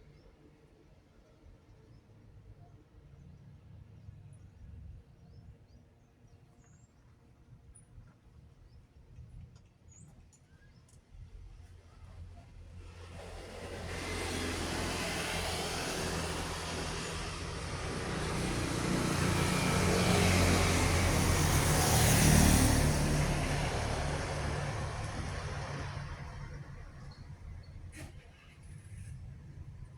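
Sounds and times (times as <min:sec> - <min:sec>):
vehicle engine drone: 0:12.7 - 0:29.9.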